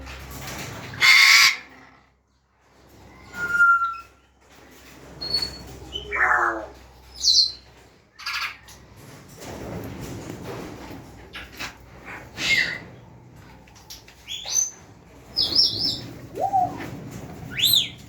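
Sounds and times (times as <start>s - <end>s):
parrots squawking and whistling: 0.9s - 1.8s, 5.3s - 7.6s, 15.4s - 18.0s.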